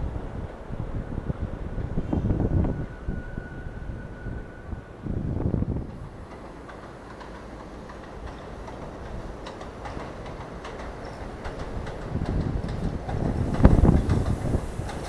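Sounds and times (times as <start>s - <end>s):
subway train rail rumble: 0.0s - 15.0s
wheels clicking over rail joints: 5.9s - 15.0s.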